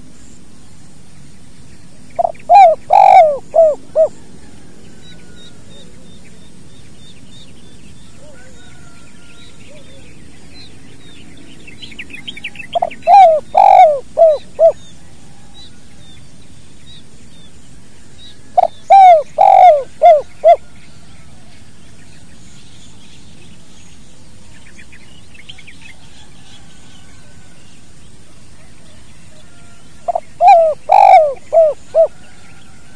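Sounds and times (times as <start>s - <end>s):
small birds chirping: 0.0s - 4.2s, 4.9s - 26.8s, 27.7s - 32.8s
dove cooing: 2.2s - 6.4s, 9.7s - 10.2s, 12.7s - 15.6s, 18.5s - 20.7s, 28.9s - 32.8s.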